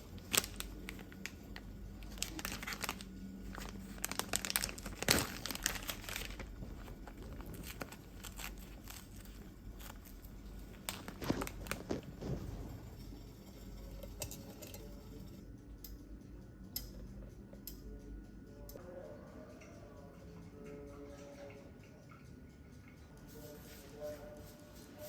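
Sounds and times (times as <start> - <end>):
crinkling and rustling: 0.0 - 13.2.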